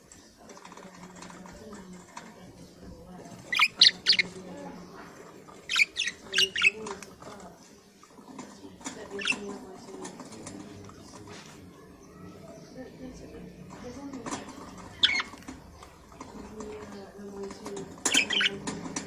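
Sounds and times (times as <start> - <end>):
soft bird chatter: 0.0 - 19.0
budgerigar chirps and squawks: 3.5 - 4.4, 5.6 - 6.8, 9.2 - 9.4, 14.9 - 15.4, 18.1 - 18.6.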